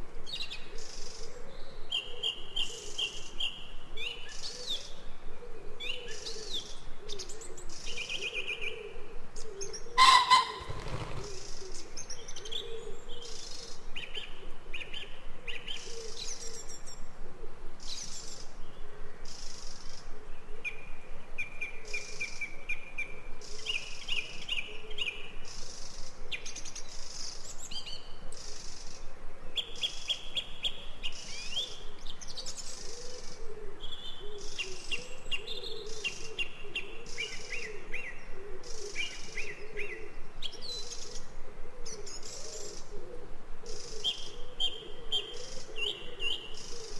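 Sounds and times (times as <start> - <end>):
birds chirping and trilling: 9.6 - 13.2
low wavering bird call: 10.0 - 11.2.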